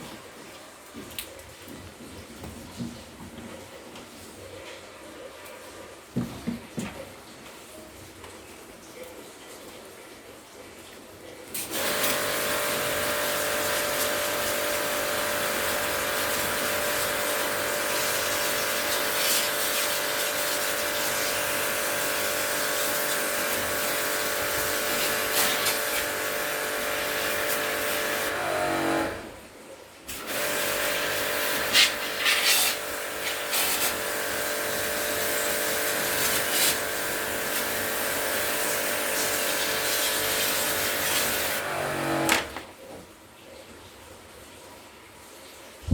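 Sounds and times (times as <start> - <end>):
electric motor running: 39.1 - 42.4.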